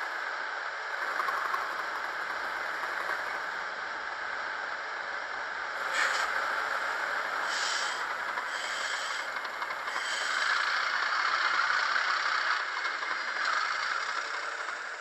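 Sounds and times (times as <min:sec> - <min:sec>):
diesel engine sound from small speaker: 0:00.0 - 0:15.0
short hissing surges: 0:05.9 - 0:06.4, 0:07.4 - 0:09.3, 0:09.9 - 0:10.7.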